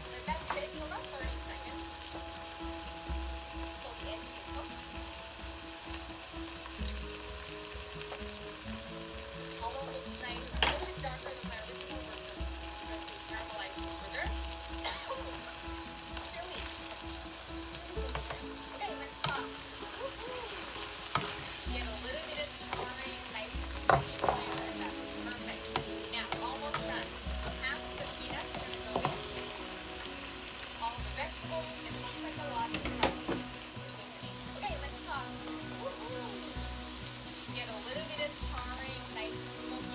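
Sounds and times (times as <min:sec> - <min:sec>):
noodles and eggs sizzling in a wok: 0:00.0 - 0:39.9
spatula stirring and scraping: 0:16.5 - 0:30.7.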